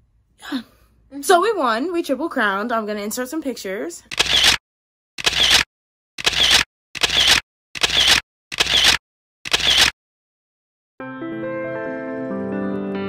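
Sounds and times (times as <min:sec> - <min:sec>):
camera shutter clicks: 0:04.1 - 0:04.6, 0:05.2 - 0:09.9.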